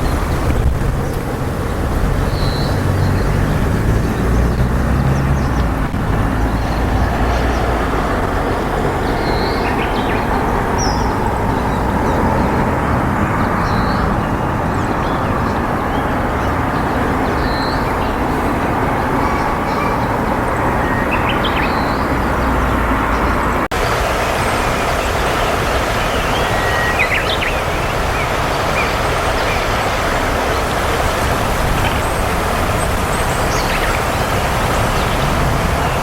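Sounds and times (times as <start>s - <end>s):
loud rumbling background noise: 0.0s - 36.0s
high bird chirps: 6.4s - 16.6s, 24.7s - 29.8s.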